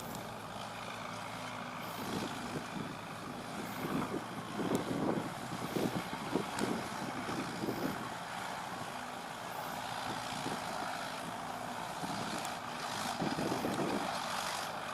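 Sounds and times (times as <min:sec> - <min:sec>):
diesel engine running: 0:00.0 - 0:14.9.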